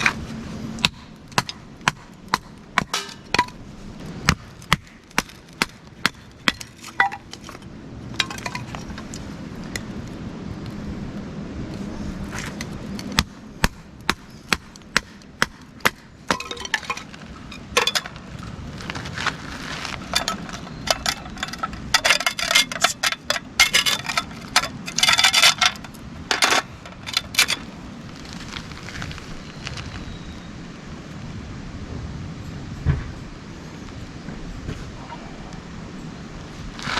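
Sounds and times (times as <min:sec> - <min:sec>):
sharp clinks and knocks: 0:02.8 - 0:03.6, 0:16.3 - 0:18.4, 0:19.9 - 0:27.8
rattling clatter: 0:16.3 - 0:27.8.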